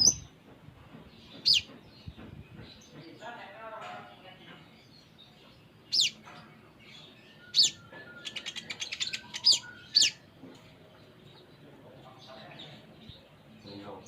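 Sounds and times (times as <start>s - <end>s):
fast bird trill: 0.0s - 0.3s, 1.4s - 1.7s, 5.9s - 6.2s, 7.4s - 10.3s.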